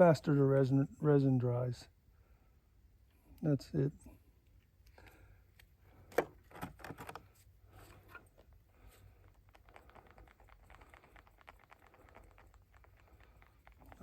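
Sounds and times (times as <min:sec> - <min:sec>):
rapid scraping while stirring: 0:08.8 - 0:14.0.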